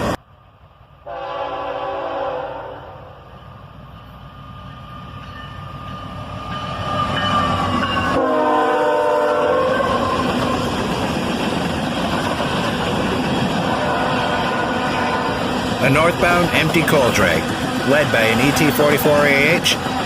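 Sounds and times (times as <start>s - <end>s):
freight train passing: 0.0s - 20.0s
train horn chord: 1.0s - 3.2s, 8.1s - 10.1s.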